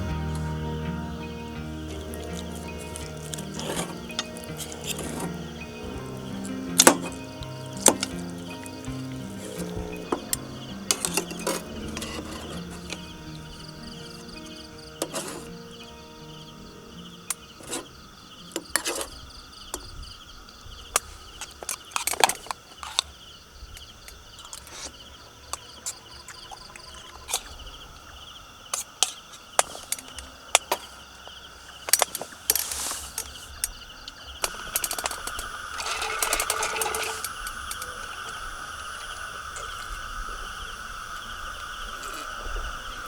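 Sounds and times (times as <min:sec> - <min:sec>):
high drone: 0:00.0 - 0:18.6
insects chirring: 0:00.0 - 0:43.0.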